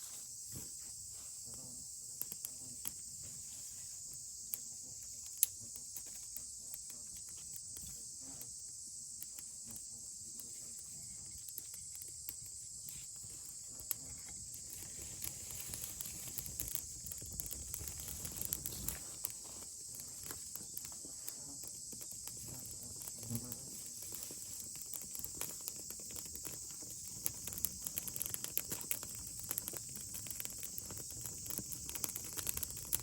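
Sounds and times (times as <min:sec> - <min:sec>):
insects chirring: 0:00.0 - 0:33.0.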